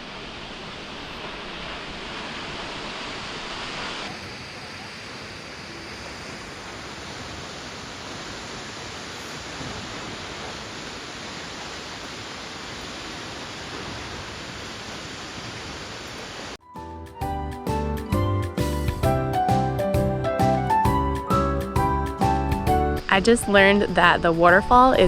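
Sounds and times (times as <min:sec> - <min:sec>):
waterfall roaring: 0:00.0 - 0:16.6
music: 0:16.6 - 0:25.0.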